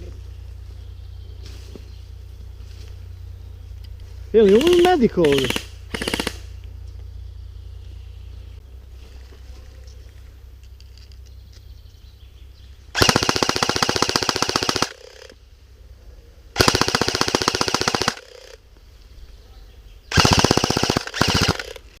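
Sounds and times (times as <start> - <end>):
airsoft rifle full-auto bursts: 4.4 - 6.5, 12.9 - 15.4, 16.6 - 18.6, 20.1 - 21.9.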